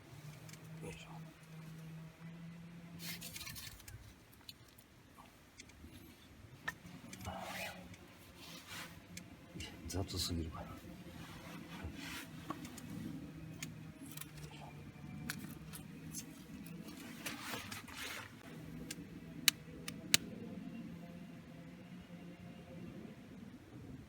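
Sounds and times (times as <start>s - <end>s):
rustle: 2.9s - 5.7s, 6.7s - 9.2s
loud sharp clicks: 18.8s - 20.3s.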